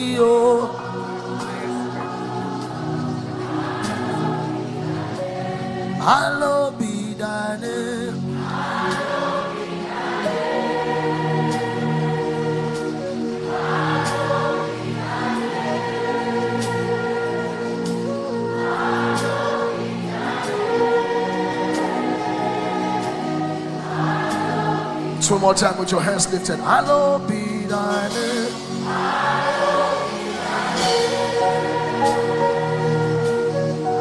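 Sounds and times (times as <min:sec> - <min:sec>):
backing music with soft beat: 0:00.0 - 0:34.0
choir singing: 0:00.0 - 0:34.0.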